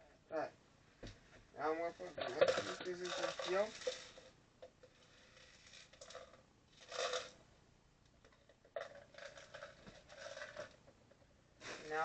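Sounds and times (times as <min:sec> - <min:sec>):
plastic pieces clicking and rattling: 0:02.2 - 0:07.4, 0:08.3 - 0:10.8.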